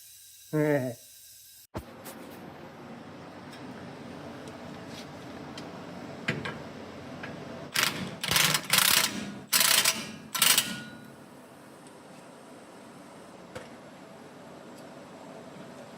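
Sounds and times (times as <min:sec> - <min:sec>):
air tool hissing: 0:00.0 - 0:01.7.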